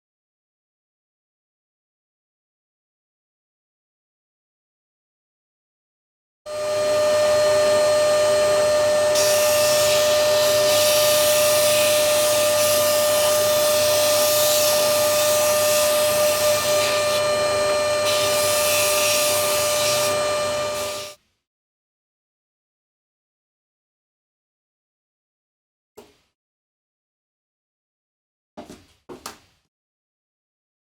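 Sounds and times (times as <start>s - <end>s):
power tool motor whining: 6.5s - 21.2s.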